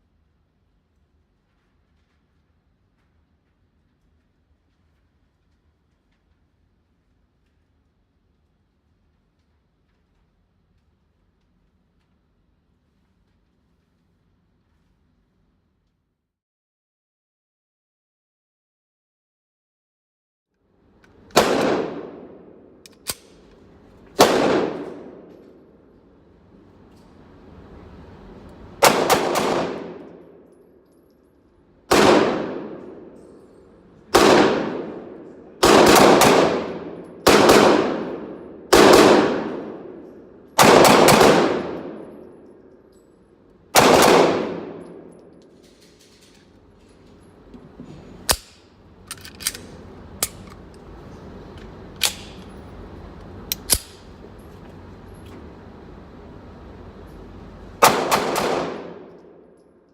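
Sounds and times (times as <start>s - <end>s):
gunshots echoing: 21.3s - 23.4s, 24.2s - 25.7s, 28.8s - 30.5s, 31.9s - 33.2s, 34.1s - 42.4s, 43.8s - 45.3s, 57.8s - 59.4s.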